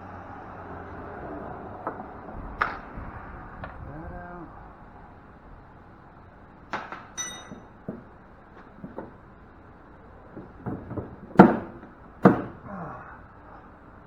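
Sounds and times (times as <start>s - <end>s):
metal scrap clanking: 6.8s - 8.0s.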